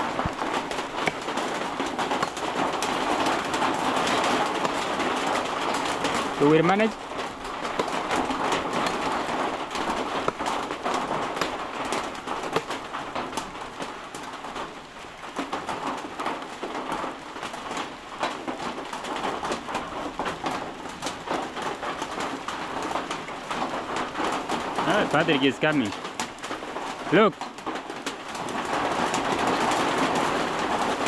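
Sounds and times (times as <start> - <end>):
heavy rain falling: 0.0 - 31.0.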